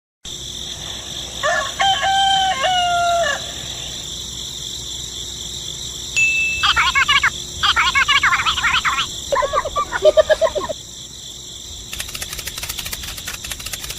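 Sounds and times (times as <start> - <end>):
rooster crowing: 1.4 - 3.9
high-pitched hiss: 6.1 - 10.8
rapid high chirping: 6.2 - 10.8, 11.8 - 13.9.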